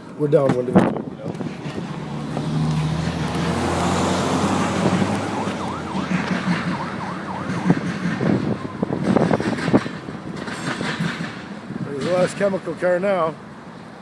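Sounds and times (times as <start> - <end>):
freight train rumbling past: 1.4 - 13.7
emergency siren yelping: 3.0 - 10.4.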